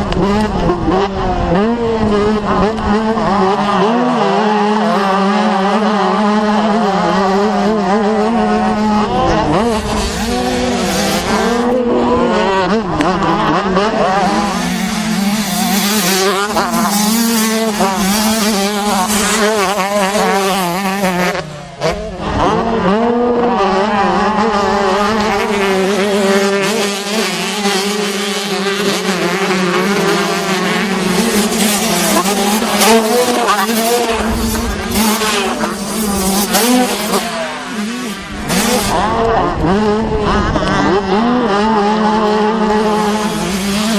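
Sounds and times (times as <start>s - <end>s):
dirt bike engines revving: 0.0s - 43.9s.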